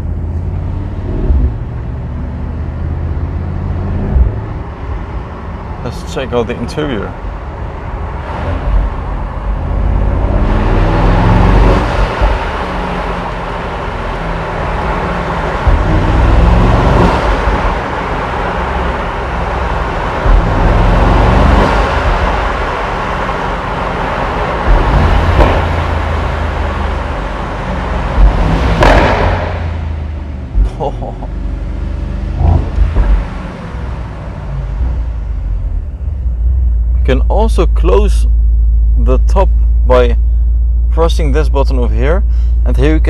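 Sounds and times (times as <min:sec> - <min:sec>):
car engine accelerating: 0:00.0 - 0:43.0
sharp exhaust cracks: 0:11.6 - 0:31.4.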